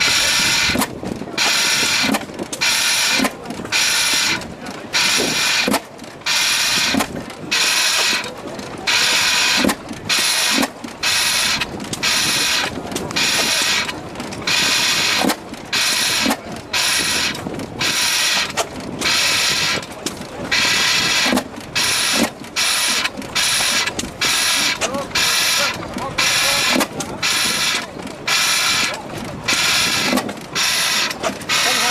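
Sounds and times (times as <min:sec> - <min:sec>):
engine noise bursts: 0:00.0 - 0:31.9.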